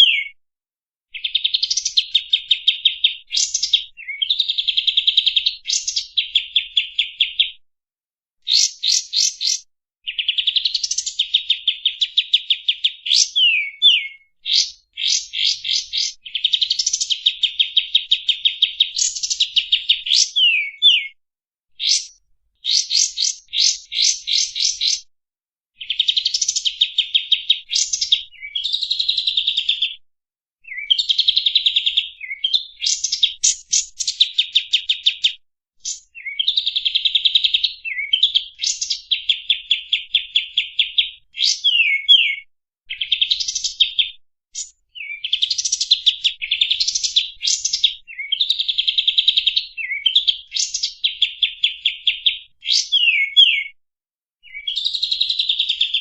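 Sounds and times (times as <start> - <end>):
bird chattering song: 0.0 - 0.4, 1.2 - 7.6, 8.4 - 21.2, 21.8 - 25.1, 25.8 - 30.0, 30.7 - 48.8, 49.6 - 53.7, 54.4 - 56.0.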